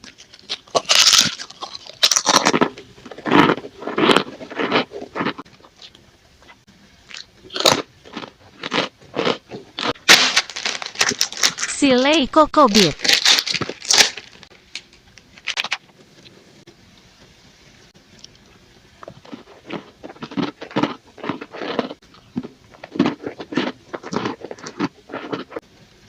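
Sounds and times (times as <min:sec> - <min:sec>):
crunchy snack being chewed: 0:00.0 - 0:11.7, 0:13.0 - 0:14.5, 0:19.0 - 0:25.6.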